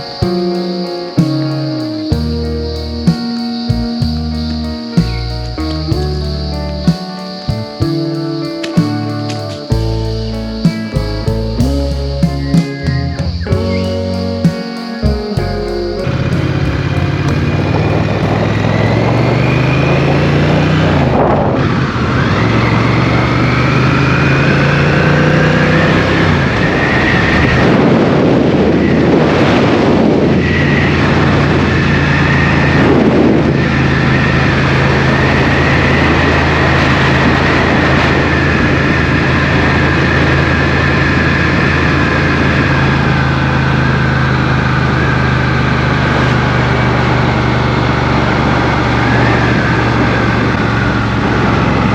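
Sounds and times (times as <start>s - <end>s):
motorcycle engine running: 9.7s - 27.3s, 30.8s - 51.9s
wind and road rush: 15.2s - 51.9s.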